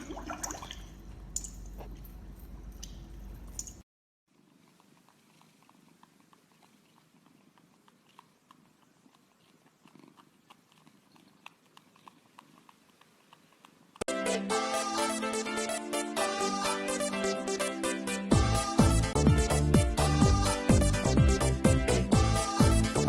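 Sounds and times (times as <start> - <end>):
cat purring: 4.4 - 14.0
electronic music with a beat: 14.1 - 23.0.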